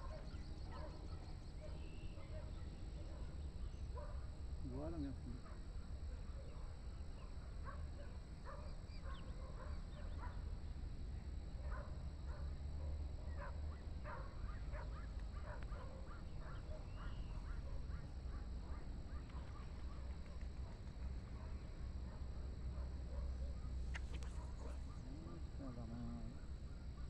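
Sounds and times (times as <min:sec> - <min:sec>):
birds calling: 0:08.6 - 0:10.4, 0:13.3 - 0:21.5, 0:23.8 - 0:27.0.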